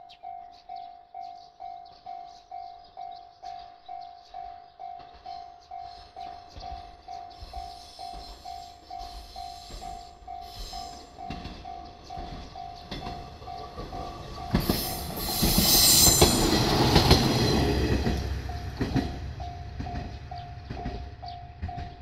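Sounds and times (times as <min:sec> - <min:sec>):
train passing: 0:00.1 - 0:22.0
wheels clacking over rail joints: 0:08.0 - 0:22.0.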